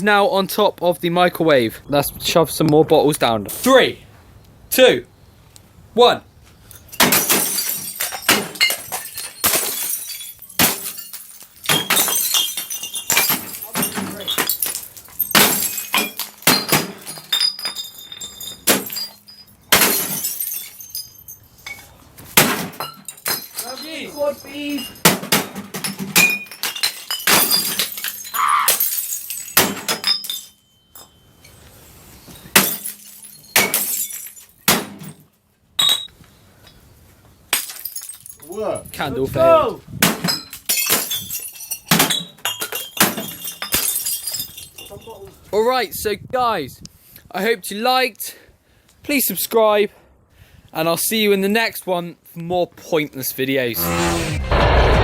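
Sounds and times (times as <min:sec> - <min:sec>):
tinkling glass shards: 0:06.8 - 0:22.0, 0:23.0 - 0:25.0, 0:26.3 - 0:34.6, 0:40.6 - 0:41.9, 0:42.6 - 0:45.2
glass bottles smashing: 0:06.8 - 0:31.6, 0:32.3 - 0:36.1, 0:37.5 - 0:38.6, 0:40.0 - 0:45.2.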